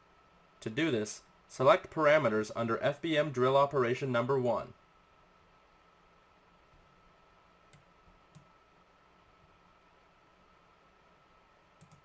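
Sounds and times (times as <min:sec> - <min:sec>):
computer mouse clicks: 0:07.7 - 0:08.5, 0:11.8 - 0:12.0.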